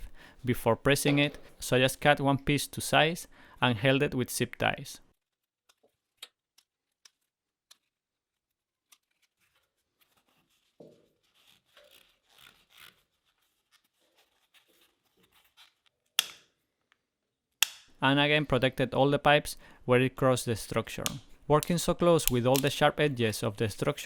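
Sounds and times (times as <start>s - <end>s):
light clicks of hand work: 21.0s - 23.1s.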